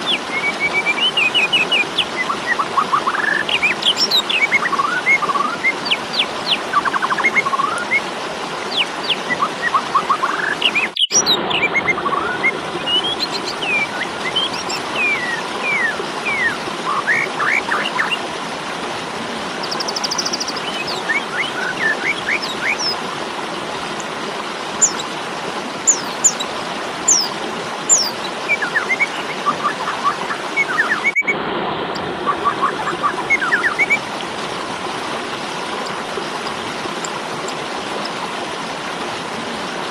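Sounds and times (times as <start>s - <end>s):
starling chirps and whistles: 0.0s - 6.0s, 8.7s - 18.2s, 19.6s - 23.0s, 24.8s - 25.1s, 25.9s - 26.4s, 27.1s - 27.3s, 27.9s - 31.4s, 32.4s - 34.0s.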